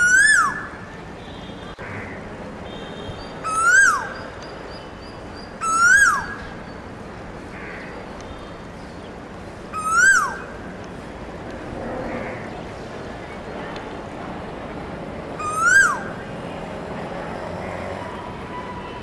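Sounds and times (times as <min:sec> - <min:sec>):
outdoor background hiss: 0:00.0 - 0:18.3
bird whistling call: 0:03.4 - 0:04.2, 0:05.6 - 0:06.4, 0:09.8 - 0:10.4.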